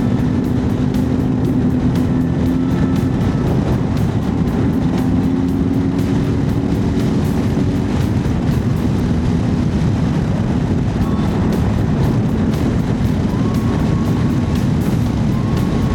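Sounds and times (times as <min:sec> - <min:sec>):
motorcycle engine running: 0:00.0 - 0:15.9
wind noise on microphone: 0:00.0 - 0:15.9.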